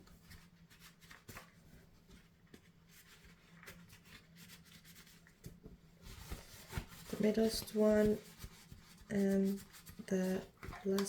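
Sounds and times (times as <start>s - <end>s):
towel rubbing plastic: 6.0s - 11.0s.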